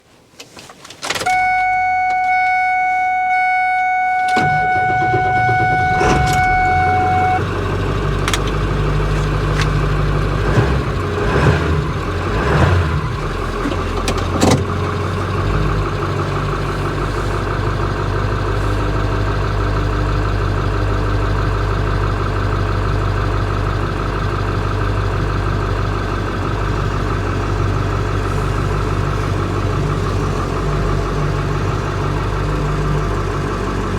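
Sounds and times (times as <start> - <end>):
clicks: 0.4 - 7.4
diesel engine starting and idling: 1.1 - 33.9
warning chime: 1.3 - 7.4.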